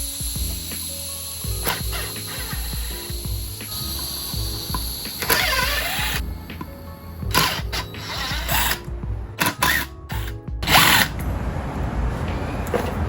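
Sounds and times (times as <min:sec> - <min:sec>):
hand-held power tool bursts: 0:00.0 - 0:11.2.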